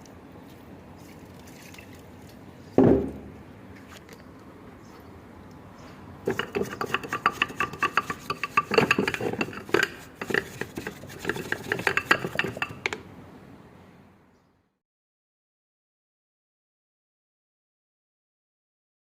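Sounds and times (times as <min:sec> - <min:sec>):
metal tools clinking and rattling: 0:06.3 - 0:10.4.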